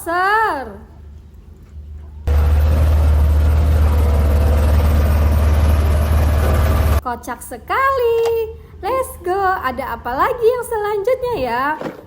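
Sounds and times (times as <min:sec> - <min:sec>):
pressure washer motor humming: 0:02.3 - 0:07.0.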